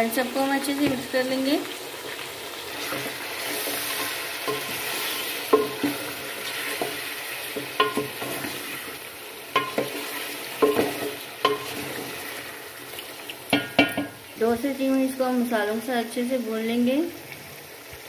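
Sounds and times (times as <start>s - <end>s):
chicken sizzling in oil: 0.0s - 18.0s
spoon knocking against pot: 5.5s - 6.0s, 6.8s - 8.5s, 9.6s - 10.0s, 10.6s - 11.8s, 13.5s - 14.2s.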